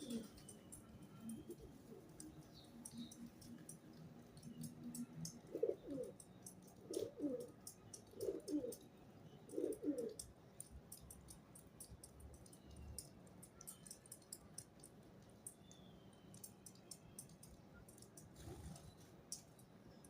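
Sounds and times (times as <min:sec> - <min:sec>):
pigeon cooing: 0:00.0 - 0:00.4, 0:05.4 - 0:06.2, 0:06.8 - 0:08.8, 0:09.5 - 0:10.2
faint ticks: 0:00.0 - 0:20.0.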